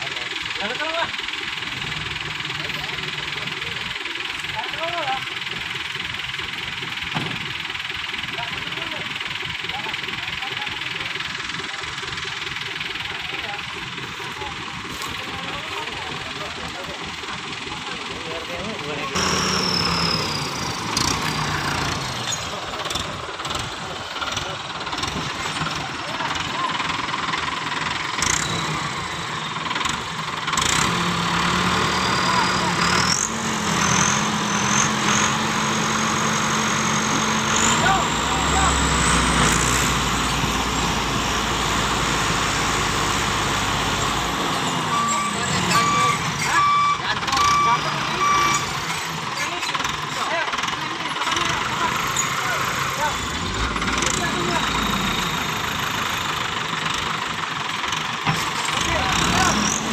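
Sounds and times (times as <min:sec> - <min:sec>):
diesel engine running under load: 0:00.0 - 0:59.9
reversing beeper: 0:18.3 - 0:23.0, 0:30.7 - 0:49.2.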